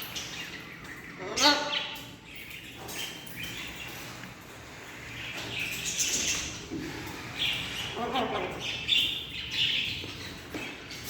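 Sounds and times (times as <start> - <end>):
birds chirping and calling: 0.0 - 11.0.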